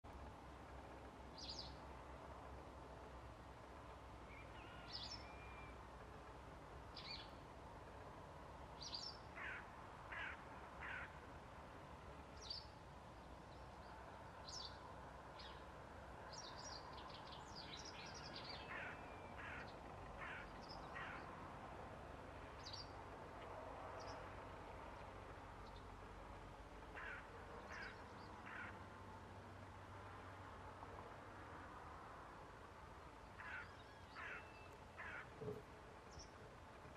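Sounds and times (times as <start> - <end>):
low bird calls: 17.8 - 21.3, 27.0 - 28.8, 33.4 - 36.4.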